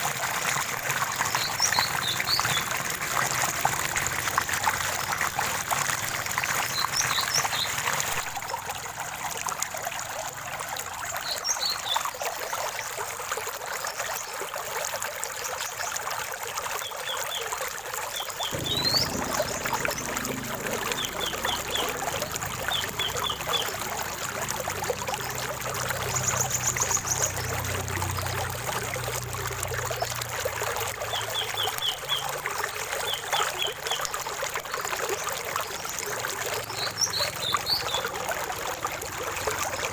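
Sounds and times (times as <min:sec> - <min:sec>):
stream water trickling: 0:00.0 - 0:39.9
birds chirping: 0:01.3 - 0:03.3, 0:18.2 - 0:28.4.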